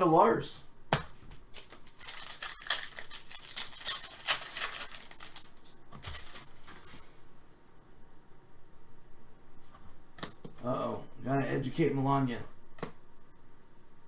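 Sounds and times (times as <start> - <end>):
card packaging crinkling: 1.4 - 6.9.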